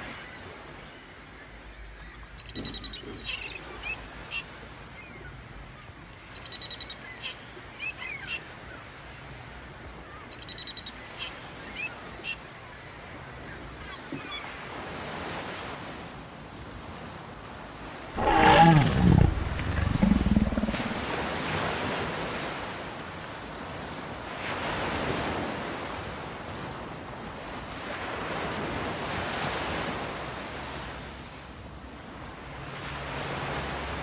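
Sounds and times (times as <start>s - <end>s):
loud deep roar: 18.2s - 21.0s.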